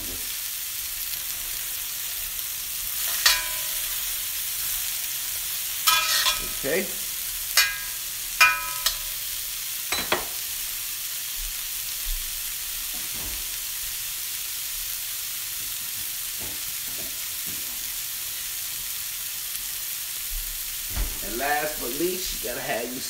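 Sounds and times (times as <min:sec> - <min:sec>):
broccoli sizzling in a wok: 0:00.0 - 0:23.0
metal spoon clinking on wok: 0:03.0 - 0:04.0, 0:05.9 - 0:06.7, 0:07.6 - 0:09.2, 0:09.9 - 0:10.3.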